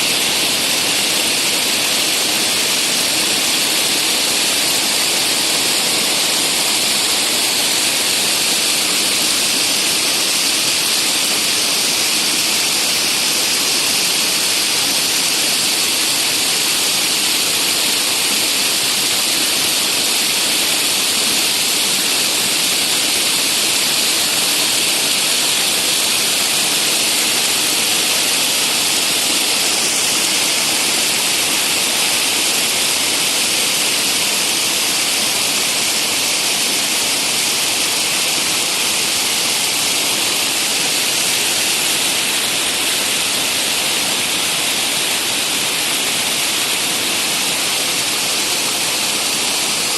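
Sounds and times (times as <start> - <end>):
waterfall roaring: 0.0 - 49.9.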